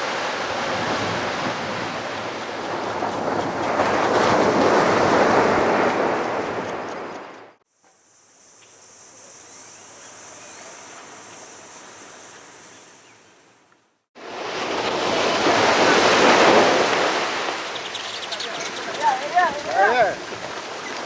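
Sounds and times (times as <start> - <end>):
surf breaking on a beach: 0.0 - 7.6, 14.2 - 21.0
steady high-pitched hiss: 7.7 - 14.1.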